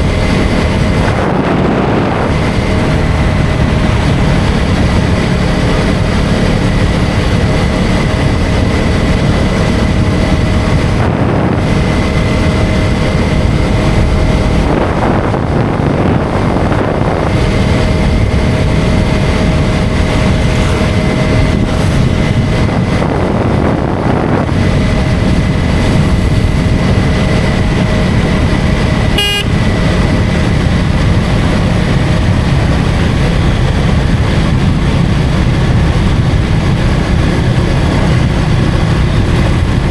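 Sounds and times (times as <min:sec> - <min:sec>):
motorcycle engine running: 0:00.0 - 0:39.9
wind and tyre noise: 0:00.0 - 0:39.9
horn toot: 0:29.1 - 0:29.8.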